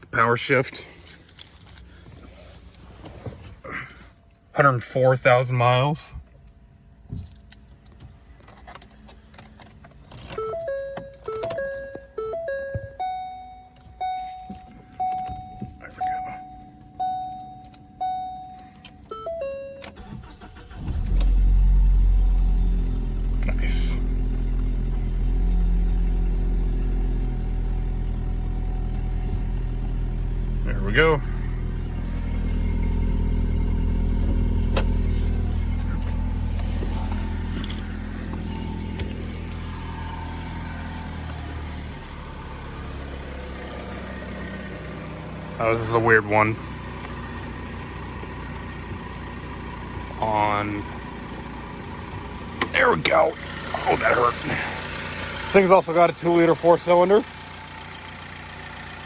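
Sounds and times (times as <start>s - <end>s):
car engine cranking and starting: 0.0s - 5.6s, 6.6s - 59.0s.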